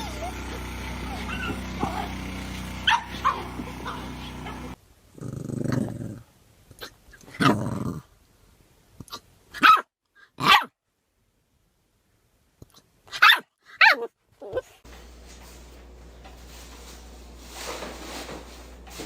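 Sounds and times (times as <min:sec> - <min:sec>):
dog growling: 0:01.1 - 0:02.1, 0:02.9 - 0:06.3, 0:07.3 - 0:08.1
dog barking sharply: 0:02.8 - 0:04.0, 0:09.6 - 0:10.7, 0:13.2 - 0:14.0.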